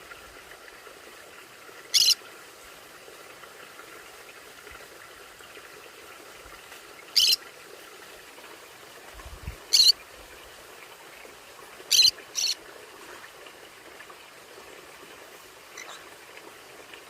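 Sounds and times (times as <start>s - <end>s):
low steady hiss: 0.0s - 17.0s
parrot loud calls: 2.0s - 2.2s.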